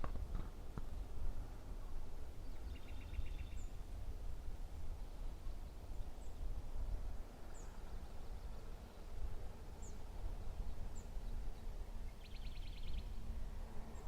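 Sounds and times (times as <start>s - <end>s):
birds chirping: 9.7s - 13.2s.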